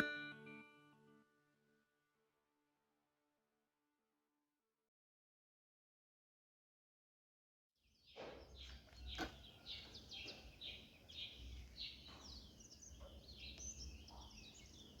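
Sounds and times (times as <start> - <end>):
birds chirping: 7.9 - 15.0.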